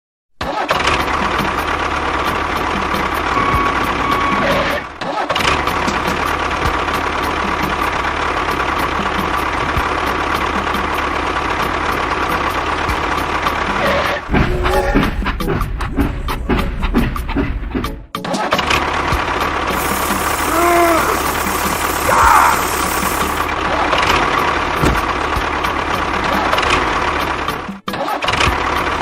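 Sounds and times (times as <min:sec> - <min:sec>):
small engine running: 0:18.8 - 0:27.6.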